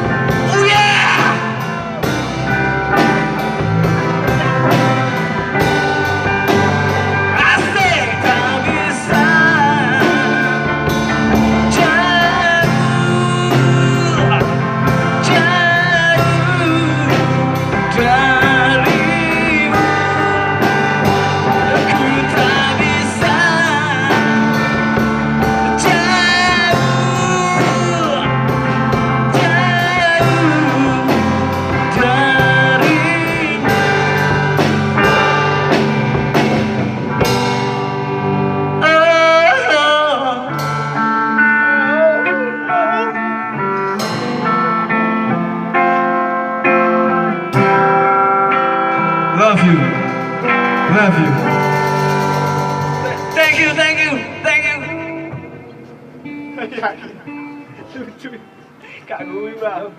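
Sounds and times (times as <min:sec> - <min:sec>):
bass guitar: 0:00.0 - 0:58.8
drums: 0:00.0 - 0:59.9
electric guitar lead: 0:00.0 - 0:59.9.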